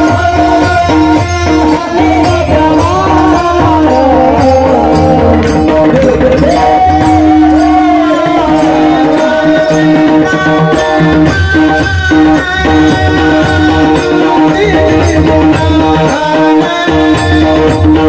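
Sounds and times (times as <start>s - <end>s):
percussion keeping time: 0.0s - 18.0s
person singing wordless alap: 0.0s - 18.0s.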